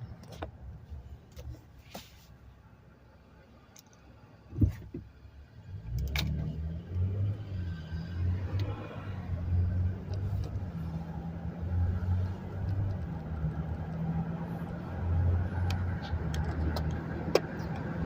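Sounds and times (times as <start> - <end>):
car engine running: 8.3 - 18.0.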